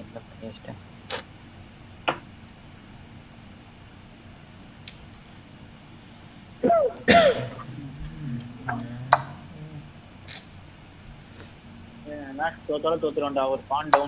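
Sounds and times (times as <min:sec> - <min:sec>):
sharp clicks: 0:01.1 - 0:01.3, 0:04.8 - 0:05.3, 0:10.2 - 0:10.5
person coughing: 0:06.6 - 0:09.4.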